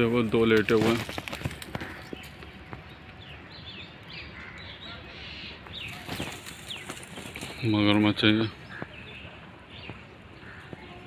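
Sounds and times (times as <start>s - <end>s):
small birds chirping: 0.0s - 11.0s
short falling bird calls: 1.0s - 3.5s.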